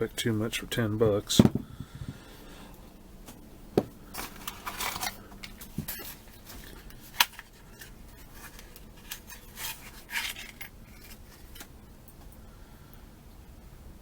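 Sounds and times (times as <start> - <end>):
packaging scraping rustles: 4.1 - 11.8.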